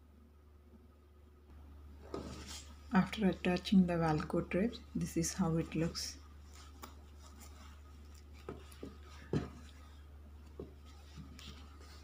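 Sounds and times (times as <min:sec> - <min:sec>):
steady low hum: 0:00.0 - 0:12.0
soft knocks and taps on cloth: 0:06.5 - 0:12.0.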